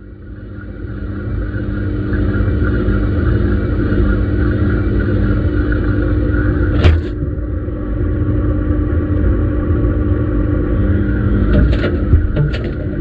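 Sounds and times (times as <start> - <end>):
washing machine motor hum: 0.0 - 13.0
washing machine knocks: 11.5 - 13.0.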